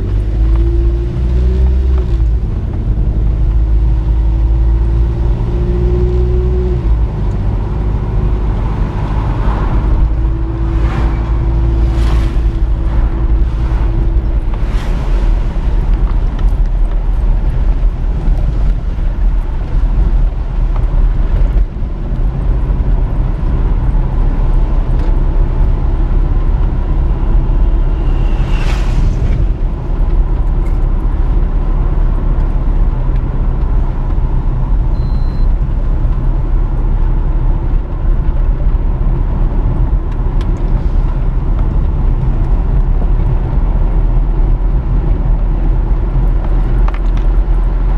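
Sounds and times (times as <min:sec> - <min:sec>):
vehicle road rumble: 0:00.0 - 0:47.9
rising whine: 0:08.3 - 0:15.5, 0:26.9 - 0:31.0.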